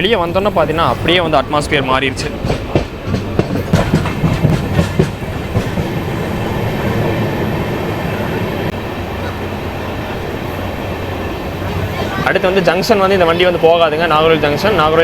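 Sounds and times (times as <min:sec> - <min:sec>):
train rumbling on track: 0:00.0 - 0:15.0
wheel clacks over rail joints: 0:02.2 - 0:06.0.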